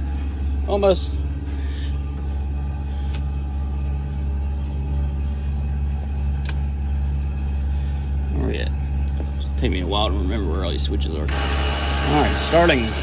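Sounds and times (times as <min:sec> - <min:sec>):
generator droning: 0:11.3 - 0:13.0.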